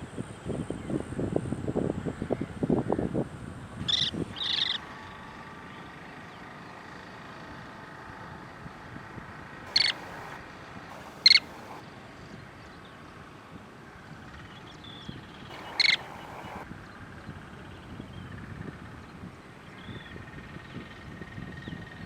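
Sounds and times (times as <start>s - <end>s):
short sharp bird calls: 9.7s - 11.8s, 15.5s - 16.6s.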